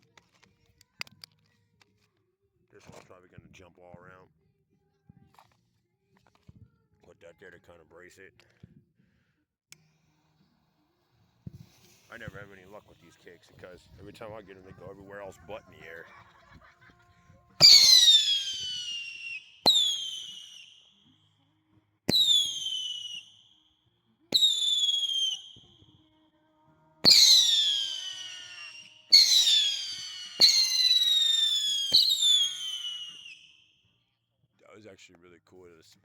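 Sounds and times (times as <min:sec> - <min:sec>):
firework pops: 0:17.6 - 0:20.8, 0:22.1 - 0:23.4, 0:24.3 - 0:26.0, 0:27.0 - 0:33.5
firework whistle sliding down: 0:17.6 - 0:20.8, 0:22.1 - 0:23.4, 0:24.3 - 0:25.8, 0:27.0 - 0:33.5.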